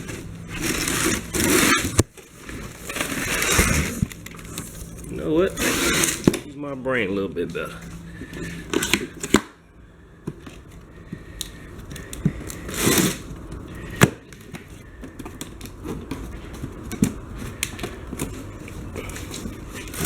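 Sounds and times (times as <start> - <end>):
noisy scrape: 0.0 - 6.4.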